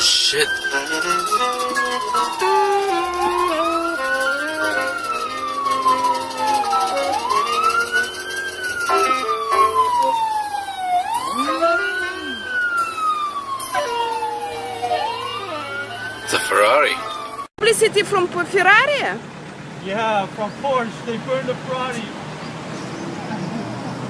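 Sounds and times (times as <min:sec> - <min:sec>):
emergency siren wailing: 0:00.0 - 0:17.5.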